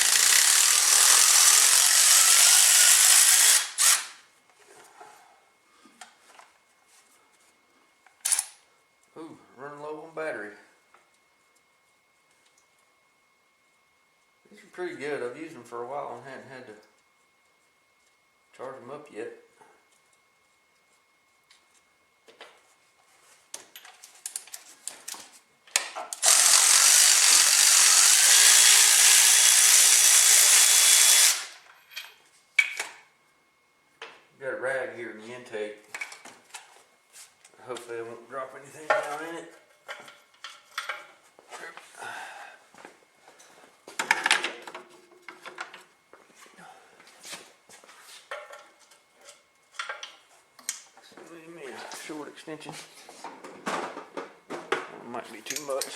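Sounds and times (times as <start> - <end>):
cordless power tool running: 0.0 - 4.2, 26.2 - 31.6
tools and parts clinking: 31.6 - 33.0, 38.9 - 41.2, 55.4 - 55.9.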